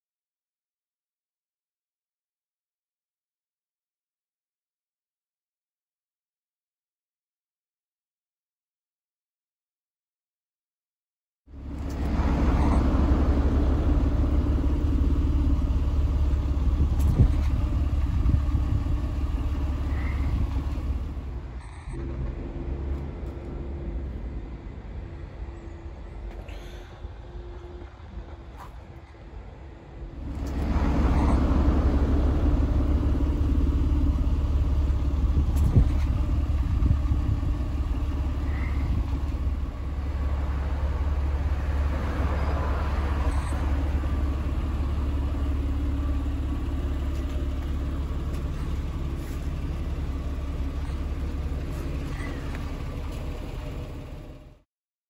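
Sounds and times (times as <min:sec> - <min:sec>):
car engine rumbling: 0:11.5 - 0:54.6.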